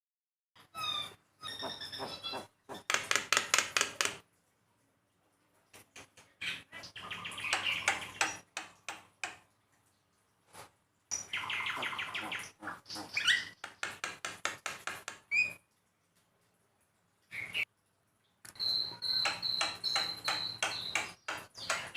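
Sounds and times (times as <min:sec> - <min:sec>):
bird harsh chattering calls: 0:00.8 - 0:03.1, 0:11.2 - 0:13.8, 0:18.6 - 0:21.9.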